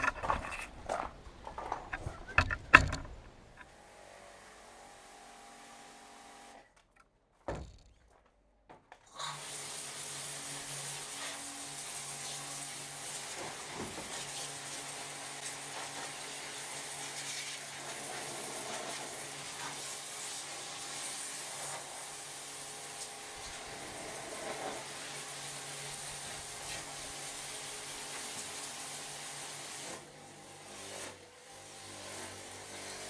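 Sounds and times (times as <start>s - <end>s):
thump: 7.5s - 7.9s.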